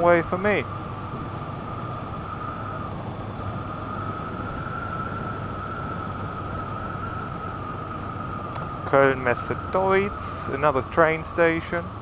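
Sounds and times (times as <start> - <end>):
wind rushing over helmet: 0.0 - 10.4
steady high whistle: 2.2 - 7.6.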